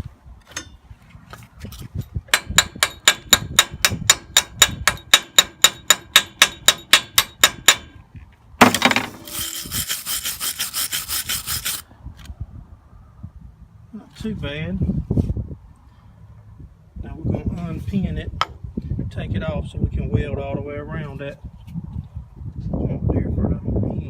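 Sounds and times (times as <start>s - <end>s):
welder crackling: 8.6s - 11.8s
scraping strokes on steel: 8.7s - 11.8s.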